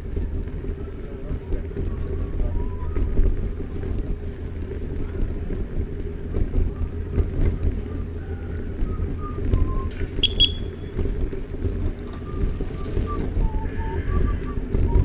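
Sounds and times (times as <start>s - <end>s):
street ambience rumble: 0.0s - 15.0s
wind buffeting microphone: 0.0s - 15.0s
high chirp: 10.2s - 10.8s.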